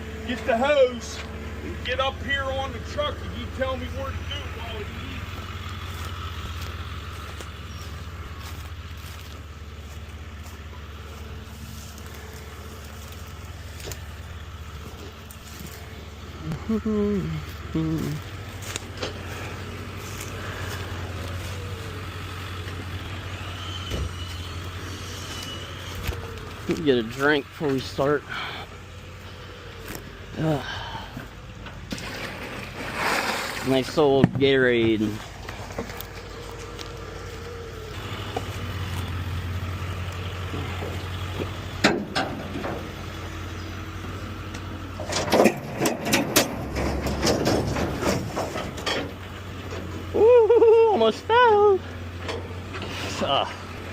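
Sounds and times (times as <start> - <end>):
diesel engine droning: 0.0 - 53.9
debris clanking and knocking: 31.6 - 36.0, 41.8 - 43.0, 45.0 - 50.0.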